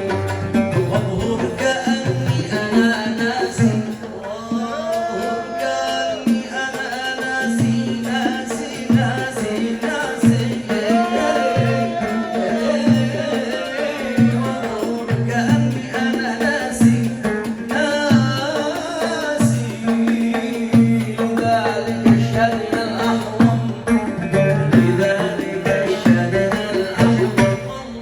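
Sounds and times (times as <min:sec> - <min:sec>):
low drum beat: 0:00.0 - 0:04.0, 0:19.4 - 0:27.7.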